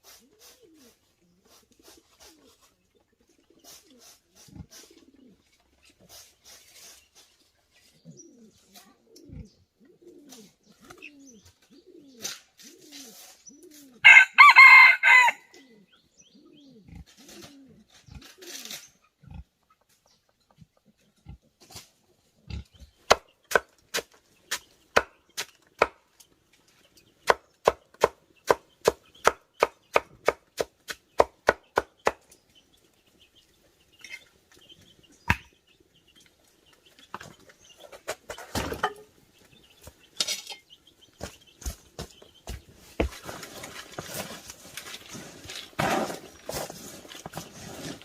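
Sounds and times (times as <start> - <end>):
rustling: 41.2 - 48.0.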